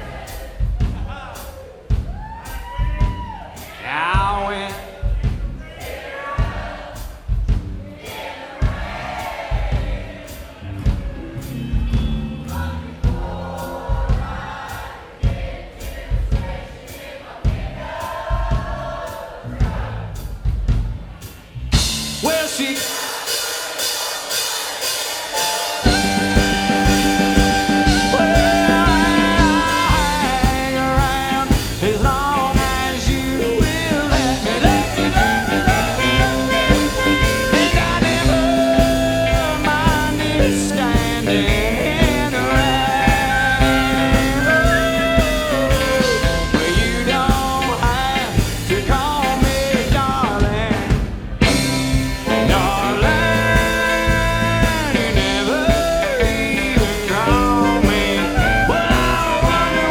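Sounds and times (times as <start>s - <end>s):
drums keeping a beat: 0.0s - 59.9s
guitars: 10.6s - 13.8s, 25.8s - 59.9s
live country rock band: 25.3s - 59.9s.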